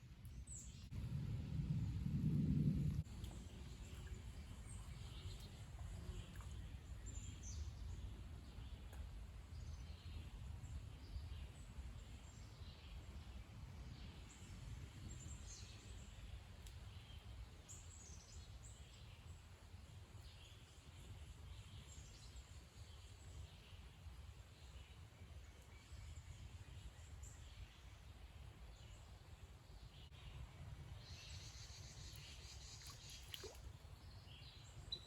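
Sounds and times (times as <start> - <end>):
low rumble: 0.8 - 4.7.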